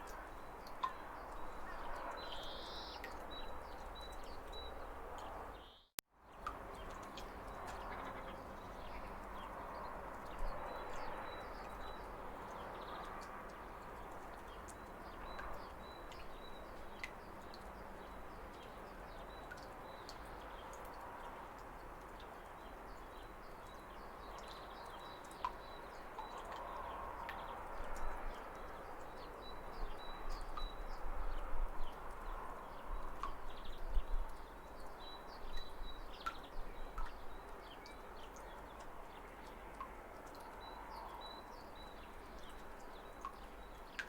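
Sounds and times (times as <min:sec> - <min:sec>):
small birds chirping: 0:00.1 - 0:05.9.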